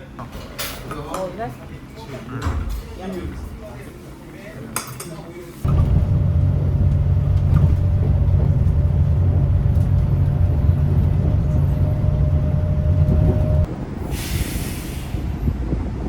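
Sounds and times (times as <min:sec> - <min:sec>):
vehicle low rumble: 0:05.6 - 0:16.0
air brake hiss: 0:14.0 - 0:15.4.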